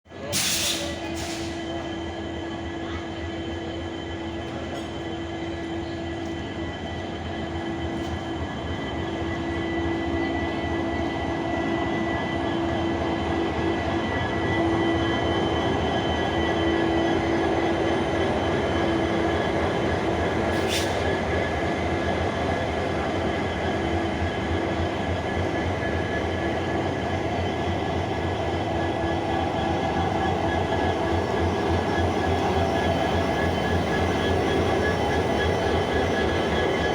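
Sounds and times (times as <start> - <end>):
locomotive engine throbbing: 1.7 - 36.9.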